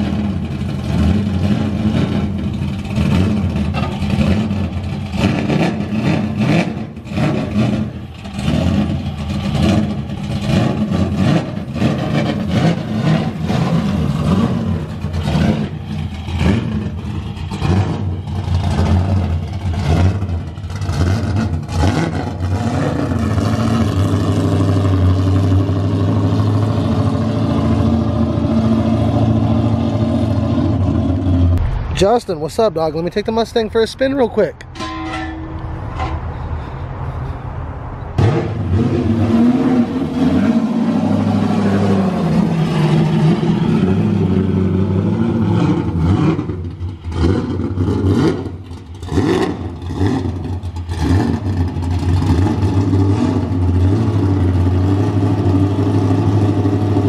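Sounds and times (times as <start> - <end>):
car engine running: 0.0 - 31.7.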